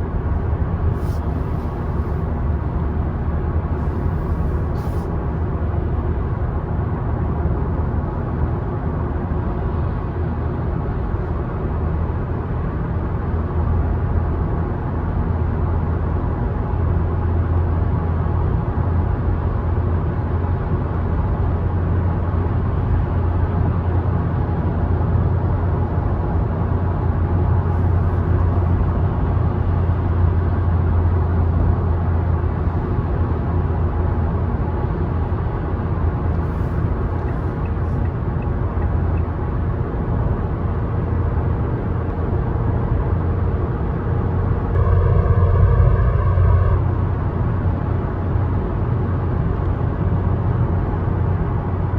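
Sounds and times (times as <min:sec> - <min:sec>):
car engine hum: 0:00.0 - 0:51.9
tyre and road noise: 0:32.2 - 0:49.6.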